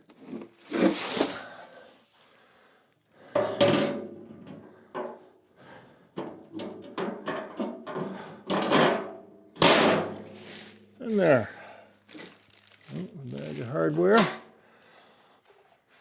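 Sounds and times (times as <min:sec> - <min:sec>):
knocks and thunks of parts: 0:06.2 - 0:10.2.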